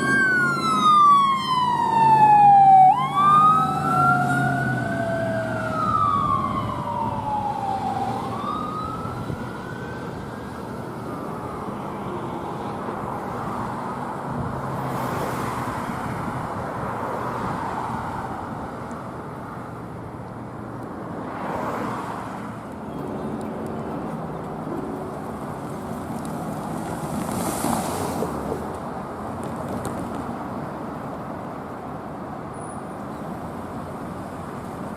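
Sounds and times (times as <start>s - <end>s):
emergency vehicle siren wailing: 0.0s - 13.9s
traffic and engine noise: 0.0s - 34.9s.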